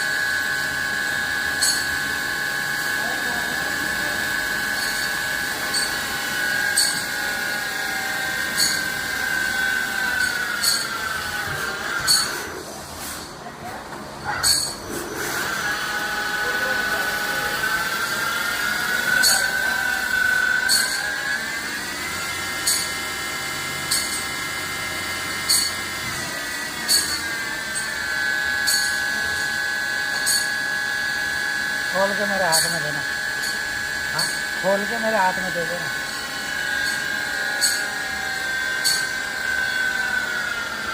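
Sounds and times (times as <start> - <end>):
machine high whine: 0.0 - 40.9.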